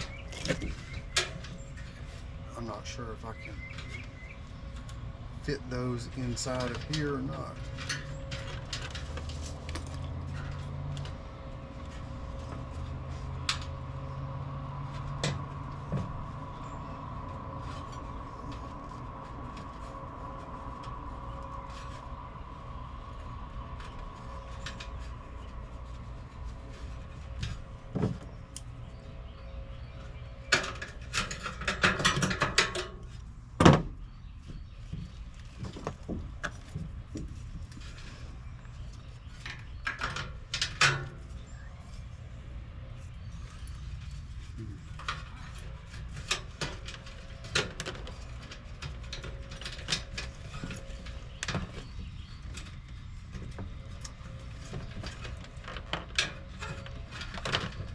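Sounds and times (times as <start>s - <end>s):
steady low hum: 0.0s - 57.9s
clicks and rattles from handling parts: 29.9s - 33.8s, 34.4s - 42.1s, 43.5s - 57.9s.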